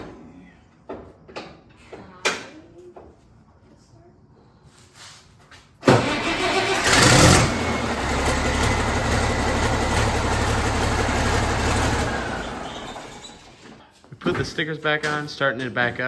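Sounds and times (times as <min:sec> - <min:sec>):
diesel tractor engine starting and running: 0:05.8 - 0:13.6.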